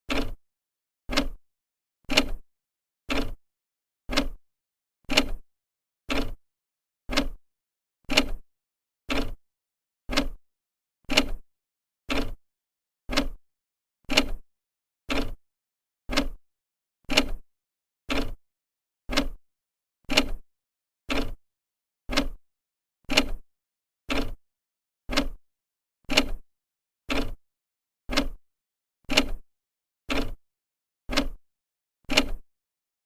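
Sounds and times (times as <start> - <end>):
clock ticking: 0.1 - 0.4, 1.1 - 1.4, 4.1 - 4.4, 7.1 - 7.4, 10.1 - 10.4, 13.1 - 13.4, 16.1 - 16.4, 19.1 - 19.4, 22.1 - 22.4, 25.1 - 25.4, 28.1 - 28.4, 30.1 - 30.4, 31.1 - 31.4.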